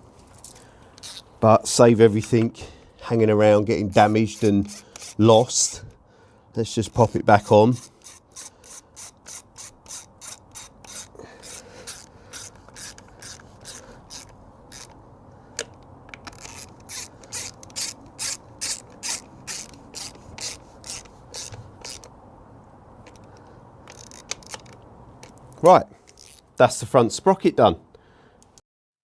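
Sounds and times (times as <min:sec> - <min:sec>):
hand ratchet ratcheting: 0:01.0 - 0:01.3, 0:03.9 - 0:05.9, 0:06.8 - 0:15.0, 0:15.6 - 0:22.1, 0:23.0 - 0:25.4, 0:26.1 - 0:26.4.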